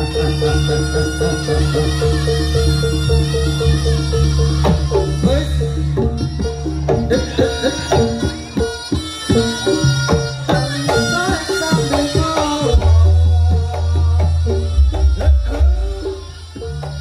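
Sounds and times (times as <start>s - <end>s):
drums: 0.0s - 17.0s
gamelan-style percussion: 0.0s - 17.0s.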